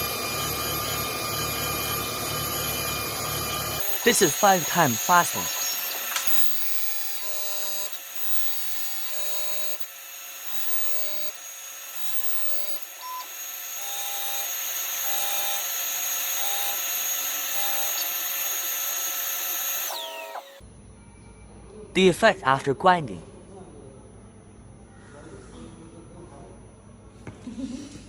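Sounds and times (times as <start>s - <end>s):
high whining tones: 0.0s - 20.6s
tool grinder grinding: 0.0s - 20.6s.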